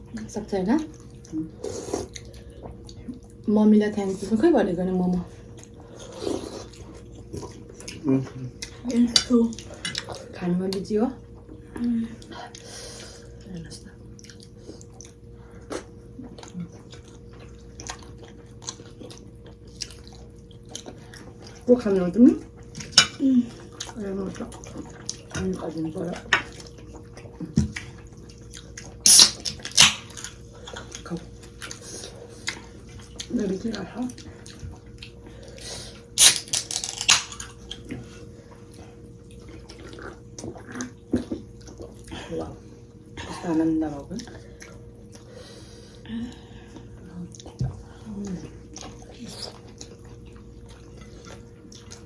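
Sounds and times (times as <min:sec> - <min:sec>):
wet chewing and lip-smacking: 0:00.0 - 0:03.5, 0:05.4 - 0:21.7, 0:22.3 - 0:43.2, 0:44.2 - 0:52.0
faint steady hum: 0:00.0 - 0:52.0.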